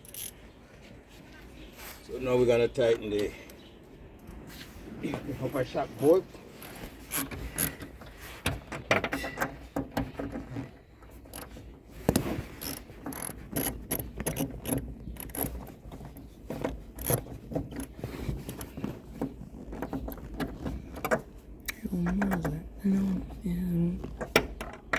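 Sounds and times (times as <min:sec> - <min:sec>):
ratchet wrench clicking: 0:00.0 - 0:00.4, 0:12.6 - 0:15.5.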